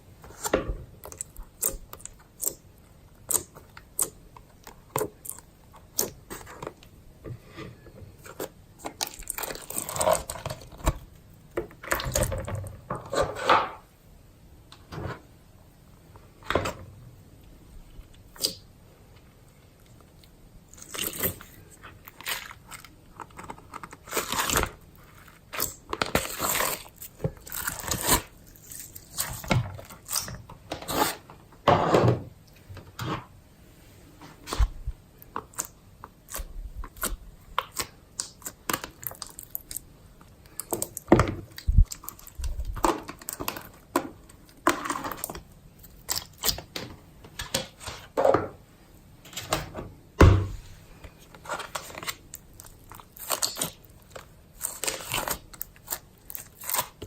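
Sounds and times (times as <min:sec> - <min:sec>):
slime squishing and squelching: 0:00.2 - 0:07.0, 0:08.2 - 0:12.5, 0:19.8 - 0:31.3, 0:34.4 - 0:48.2, 0:50.4 - 0:57.0.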